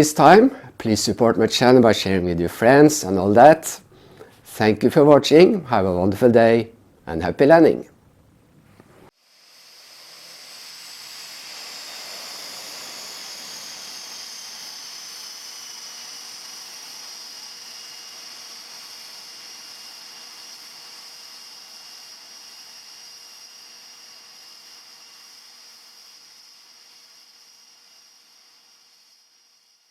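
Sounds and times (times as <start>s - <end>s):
aircraft engine whine and hiss: 9.1s - 29.9s.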